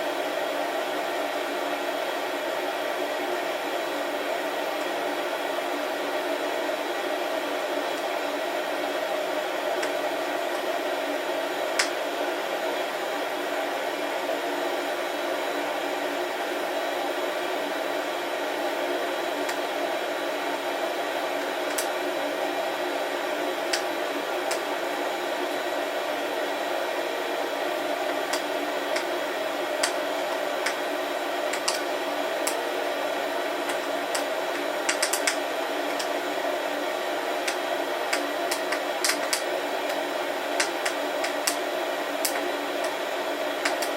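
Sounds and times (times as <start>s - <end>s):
coffee roaster humming: 0.0s - 43.9s
sharp clicks: 31.5s - 31.8s, 34.9s - 36.1s, 43.6s - 43.9s.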